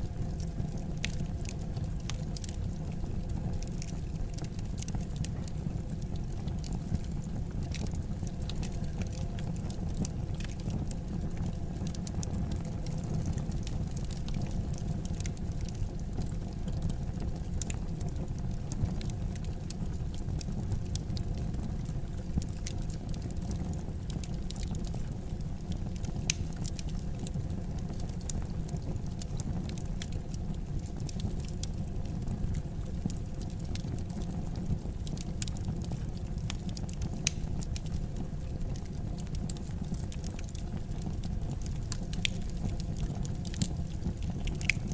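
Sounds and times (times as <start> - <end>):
logs crackling and popping: 0.0 - 44.9
low rumble of flames: 0.0 - 44.9.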